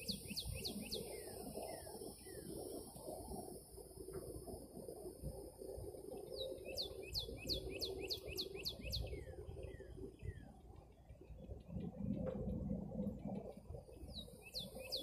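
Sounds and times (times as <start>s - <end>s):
songbird singing: 0.0s - 4.3s, 5.6s - 15.0s
faint steady hum: 0.0s - 15.0s.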